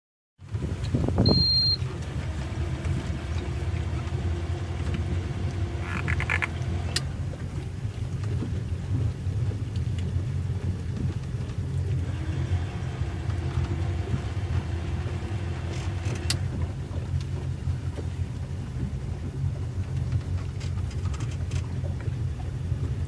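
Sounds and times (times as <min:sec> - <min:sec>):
motorboat engine rumbling: 0:00.4 - 0:23.0
short high beep: 0:01.2 - 0:01.8.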